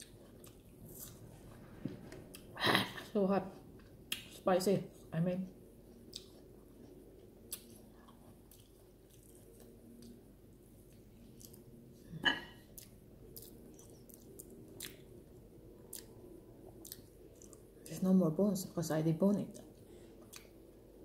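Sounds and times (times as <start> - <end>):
person chewing: 0.0 - 1.3, 5.8 - 10.2, 10.8 - 17.9, 19.5 - 20.7.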